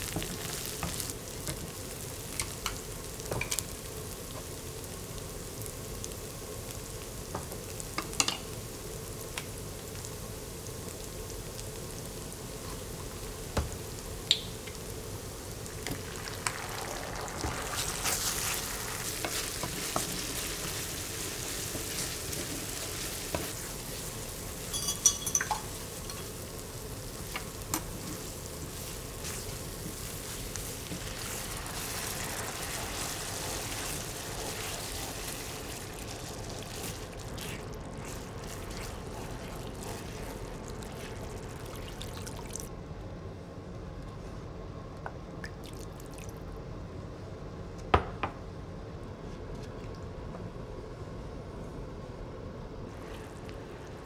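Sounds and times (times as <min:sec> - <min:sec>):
food sizzling in a pan: 0:00.0 - 0:42.7
metallic clink: 0:24.7 - 0:25.6.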